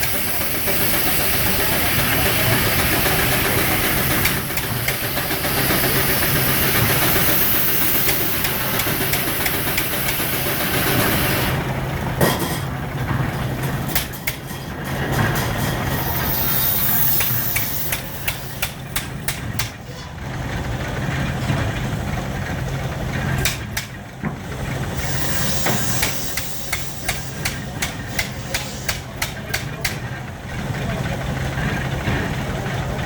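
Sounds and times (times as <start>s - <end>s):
steam hiss: 0.0s - 11.6s, 15.9s - 18.8s, 24.9s - 29.1s
steam engine hum: 0.0s - 33.0s.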